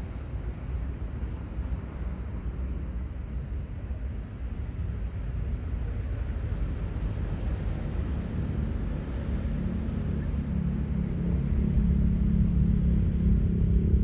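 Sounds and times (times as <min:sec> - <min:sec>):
airplane passing rumble: 0:09.4 - 0:14.0.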